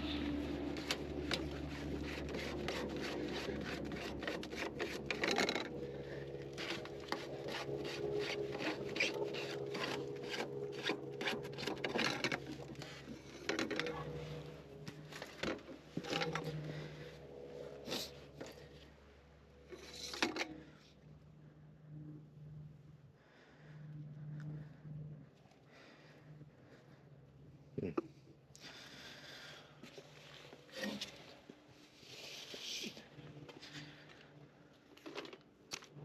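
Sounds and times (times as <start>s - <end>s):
steady low hum: 0.0s - 36.0s
hand tools scraping and clicking: 0.7s - 5.8s, 6.5s - 16.9s.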